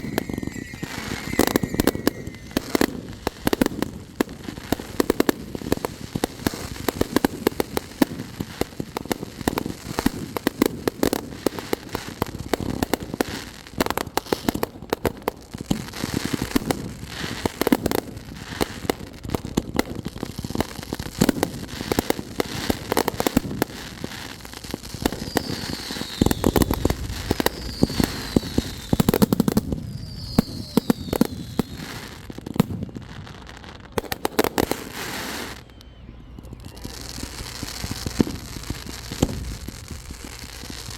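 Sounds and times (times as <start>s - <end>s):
fireworks booms: 0.0s - 13.2s, 24.9s - 35.7s, 36.3s - 40.9s
falling firework whistles: 0.0s - 13.4s, 21.2s - 40.9s
fireworks popping and crackling: 0.0s - 40.9s.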